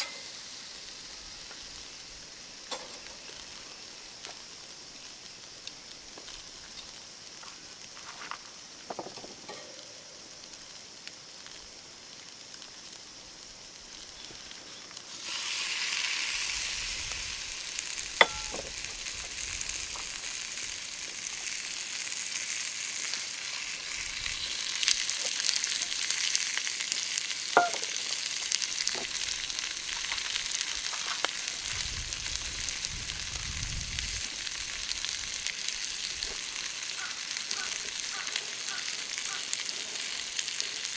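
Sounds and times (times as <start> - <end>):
food sizzling in hot oil: 0.0 - 40.9.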